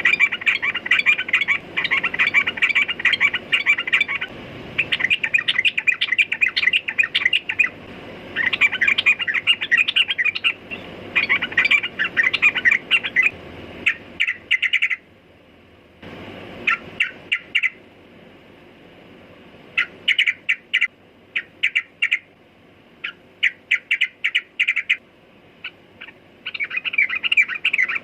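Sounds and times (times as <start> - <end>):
bird singing bubbling chirps: 0.0 - 7.8, 8.4 - 13.3, 13.9 - 15.0, 25.6 - 28.0.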